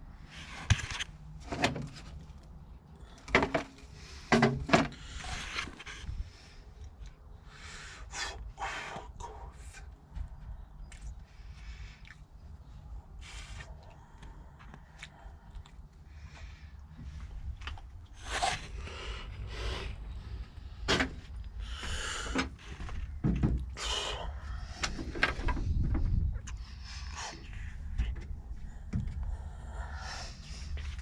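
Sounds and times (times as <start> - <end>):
low steady rumble: 9.2 - 31.0.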